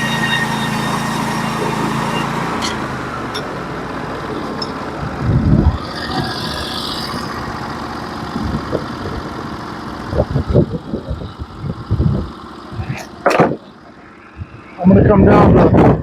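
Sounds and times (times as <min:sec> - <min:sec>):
sawmill engine running: 0:00.0 - 0:15.6
sharp clatter: 0:12.8 - 0:13.8
knocks and thumps: 0:13.2 - 0:13.7.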